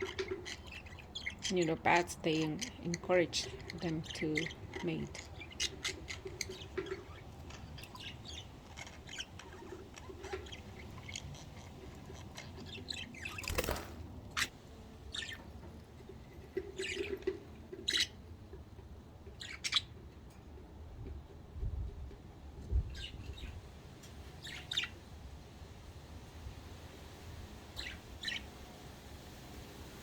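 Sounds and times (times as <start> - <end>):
budgerigars chirping: 0.0 - 13.8, 15.1 - 15.4, 16.6 - 18.2, 19.4 - 19.9, 24.4 - 25.0, 27.8 - 28.5.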